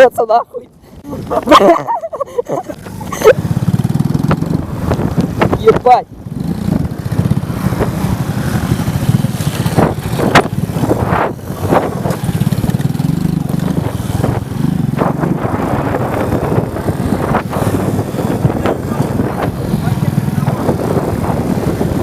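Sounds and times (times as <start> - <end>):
motorcycle engine running: 2.6 - 22.0.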